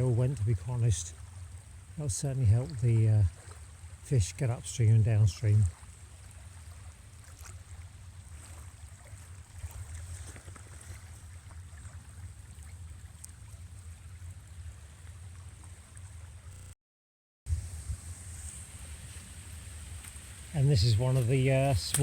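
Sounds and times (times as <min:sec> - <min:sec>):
wind buffeting microphone: 0:17.5 - 0:22.0
river rushing: 0:17.6 - 0:22.0.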